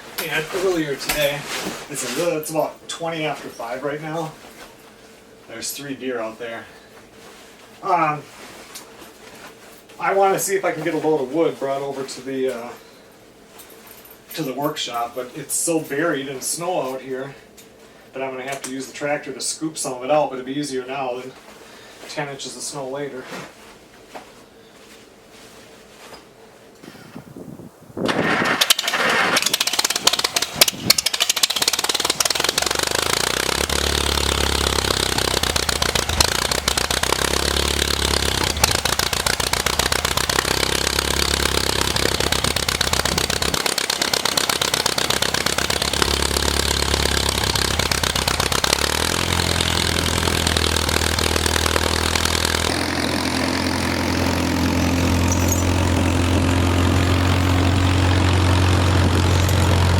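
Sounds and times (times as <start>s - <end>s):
tractor engine starting and running: 0.0s - 2.4s, 28.0s - 59.9s.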